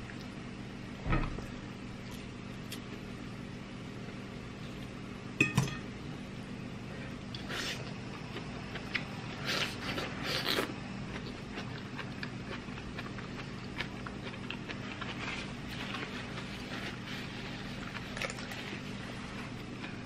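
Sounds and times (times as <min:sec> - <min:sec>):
person chewing crunchy greens: 0:07.3 - 0:20.0.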